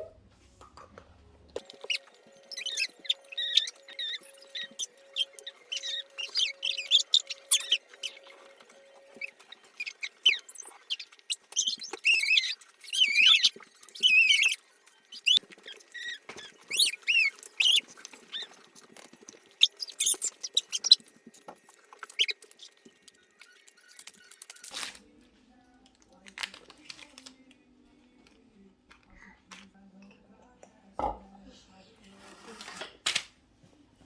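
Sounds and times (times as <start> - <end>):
high-pitched squeaky vocal sounds: 1.6 - 18.7, 19.5 - 21.0, 22.0 - 22.9.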